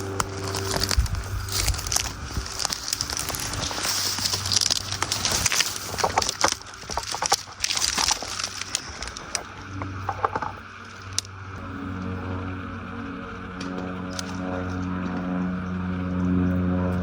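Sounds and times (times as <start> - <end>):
dry leaves and twigs crunching: 0.0 - 12.0
bees buzzing: 0.0 - 17.0.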